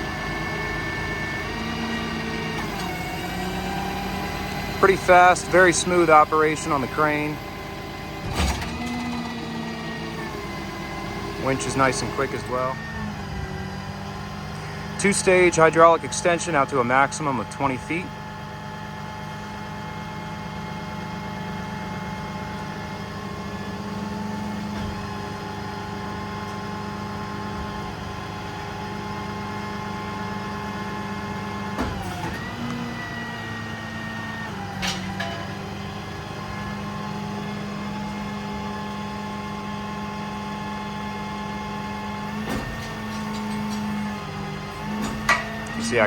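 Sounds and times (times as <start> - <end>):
hydraulic crane hum and whine: 0.0 - 46.0.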